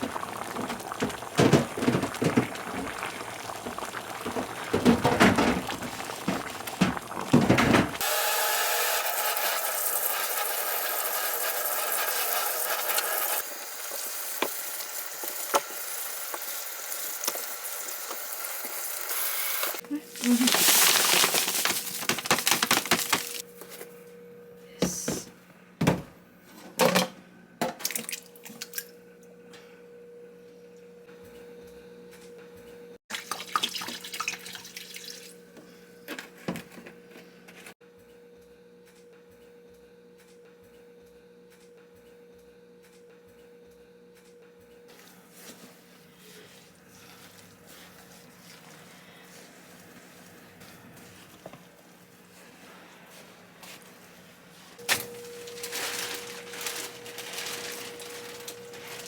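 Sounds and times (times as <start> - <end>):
tap running and splashing: 0.0 - 8.0, 20.2 - 23.4, 33.1 - 35.4
dishes knocking and clinking: 1.0 - 2.7, 4.3 - 8.0.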